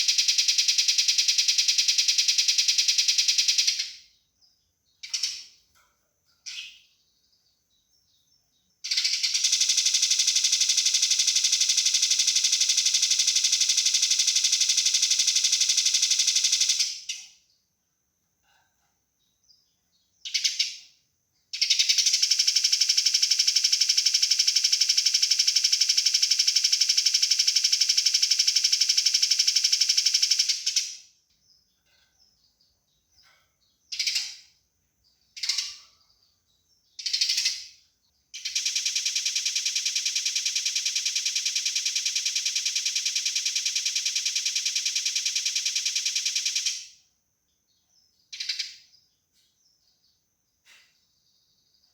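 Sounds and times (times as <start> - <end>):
sparrow harsh chirps: 5.0 - 5.6, 6.4 - 7.4, 33.2 - 36.3, 36.9 - 37.8
sparrow rattling trills: 5.0 - 7.5, 31.5 - 46.8, 48.1 - 50.0.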